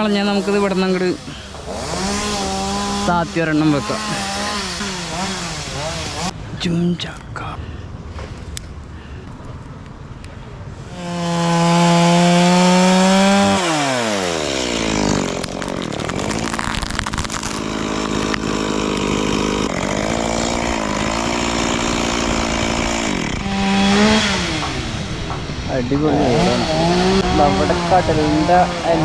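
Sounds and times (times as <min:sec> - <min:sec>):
chainsaw cutting branch: 0:00.0 - 0:06.4, 0:10.9 - 0:29.0.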